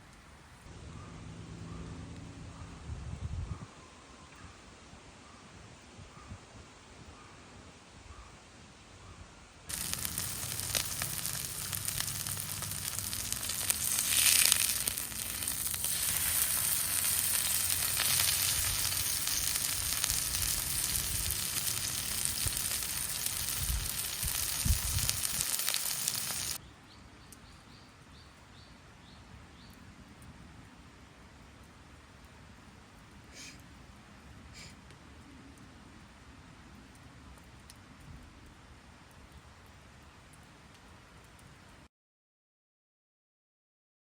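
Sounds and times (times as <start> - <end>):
steak sizzling in a pan: 9.7 - 26.6.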